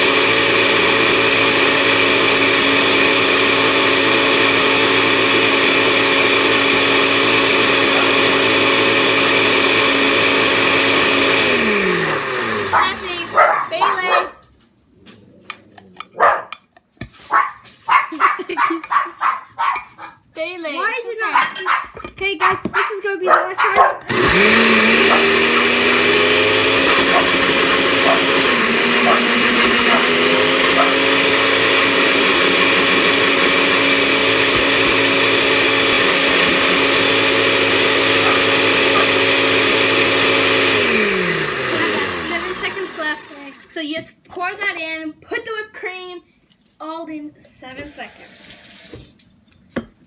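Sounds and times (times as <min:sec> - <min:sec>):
blender motor running: 0:00.0 - 0:14.1, 0:24.1 - 0:43.8
dog barking: 0:13.4 - 0:14.4, 0:16.2 - 0:16.6, 0:17.3 - 0:20.2, 0:21.3 - 0:24.1, 0:30.8 - 0:31.0.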